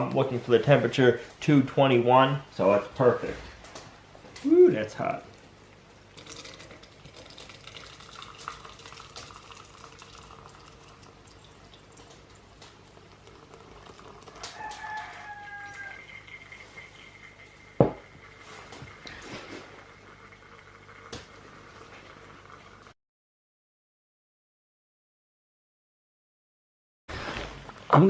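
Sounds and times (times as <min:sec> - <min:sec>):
syrup pouring and trickling: 0:05.1 - 0:22.9
pitched hen-like call: 0:14.3 - 0:16.3.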